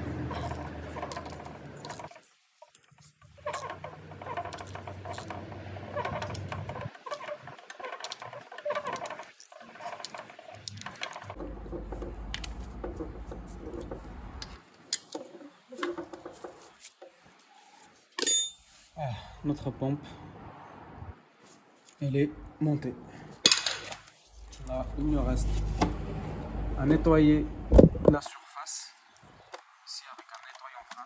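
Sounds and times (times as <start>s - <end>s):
tools and bolts clicking scraping: 0.0s - 12.5s
sharp metallic clink: 18.2s - 18.7s.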